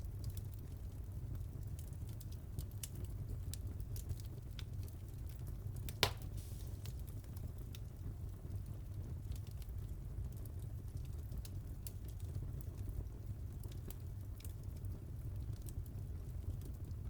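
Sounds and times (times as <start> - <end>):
fire crackling: 1.6 - 16.9
fire popping: 5.8 - 7.8.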